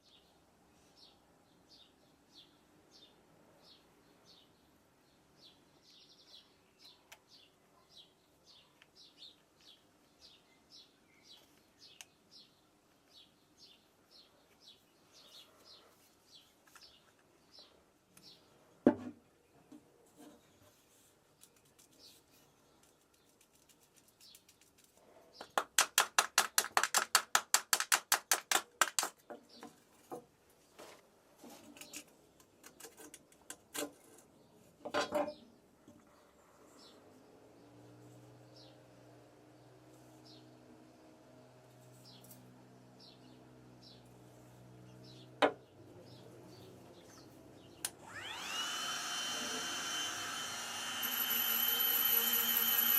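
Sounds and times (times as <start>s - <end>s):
small bird chirping: 20.4s - 25.6s.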